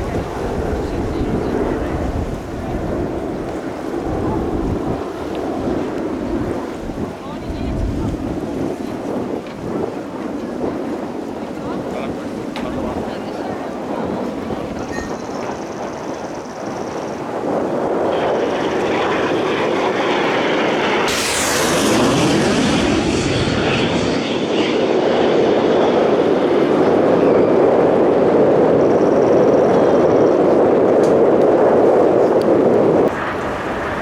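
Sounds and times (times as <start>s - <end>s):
jet engines roaring: 0.0s - 34.0s
sharp hiss: 21.0s - 22.8s.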